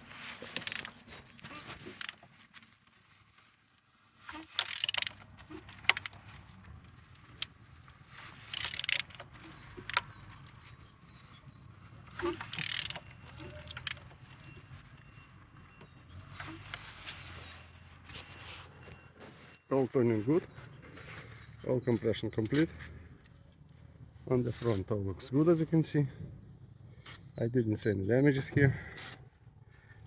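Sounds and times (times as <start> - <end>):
metallic ratcheting and scraping: 0.0 - 2.4, 4.2 - 14.7
sharp metal clicks: 0.4 - 1.1, 1.8 - 2.3, 4.3 - 10.8, 12.0 - 14.6.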